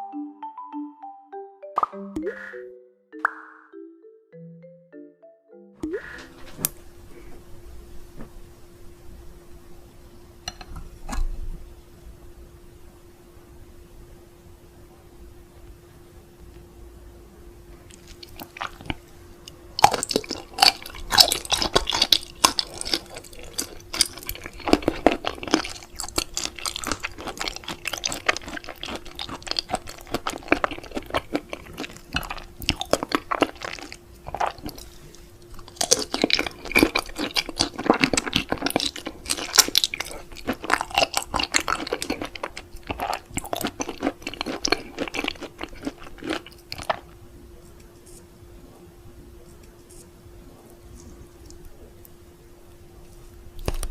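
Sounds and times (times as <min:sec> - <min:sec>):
faint steady hum: 0:05.8 - 0:53.9
wet chewing and crunching: 0:17.8 - 0:48.2, 0:53.6 - 0:53.9.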